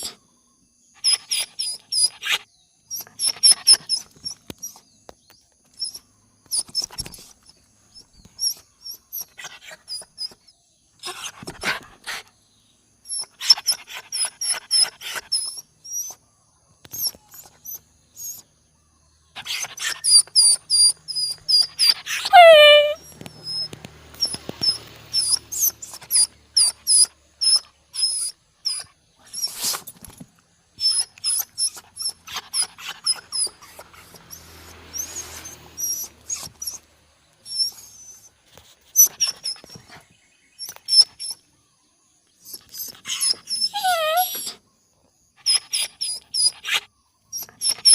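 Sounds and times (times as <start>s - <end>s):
bird chirping: 0.0s - 47.9s
bird squeal falling in pitch: 22.3s - 23.0s.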